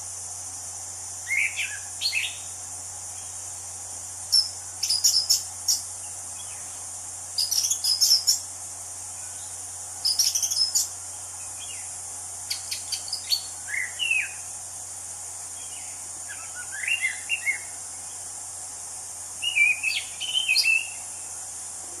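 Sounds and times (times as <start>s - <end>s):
high insect drone: 0.0s - 22.0s
thrush singing whistles and chirps: 1.2s - 3.4s, 4.2s - 8.5s, 9.1s - 14.6s, 15.5s - 18.3s, 19.3s - 21.3s.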